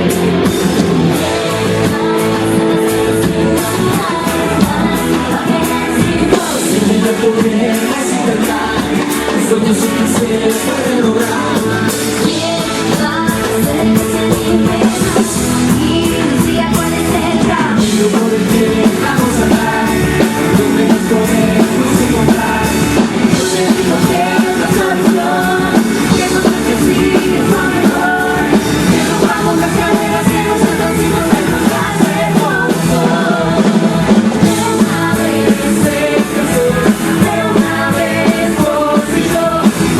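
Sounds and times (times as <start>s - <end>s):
rock band playing live: 0.0s - 39.9s
person singing: 1.2s - 39.9s.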